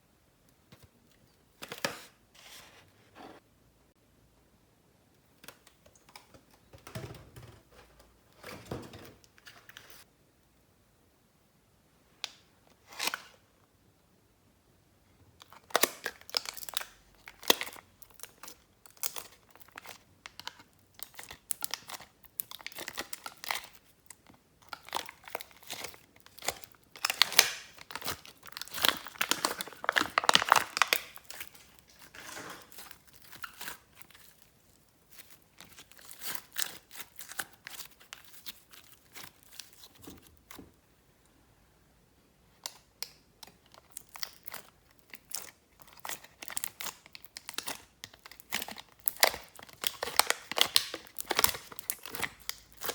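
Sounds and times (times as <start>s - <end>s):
slime crackling and popping: 24.7s - 34.4s, 43.0s - 52.9s.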